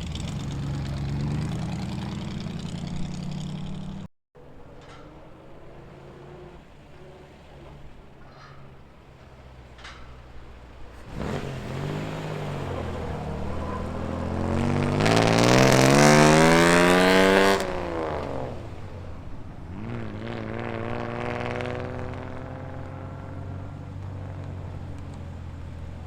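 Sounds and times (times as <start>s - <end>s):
car engine revving: 0.0s - 4.1s, 10.7s - 26.0s.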